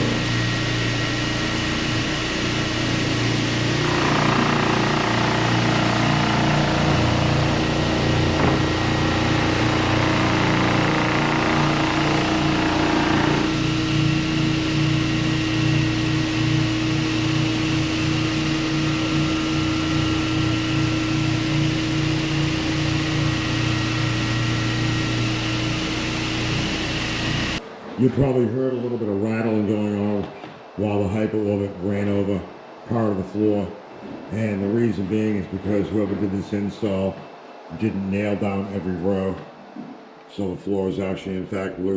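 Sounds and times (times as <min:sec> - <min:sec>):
floor sander humming: 0:00.0 - 0:27.8.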